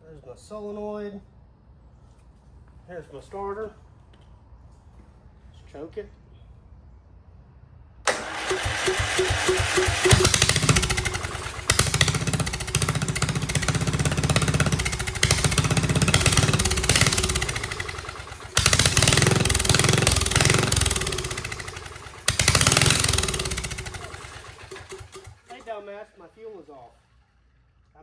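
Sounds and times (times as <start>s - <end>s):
engine cranked by electric starter: 8.1s - 27.9s.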